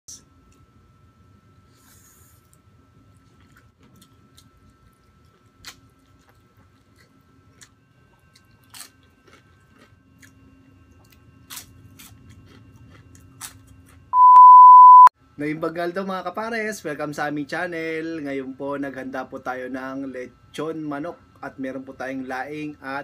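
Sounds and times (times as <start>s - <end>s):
person chewing crispy food: 1.7s - 14.1s.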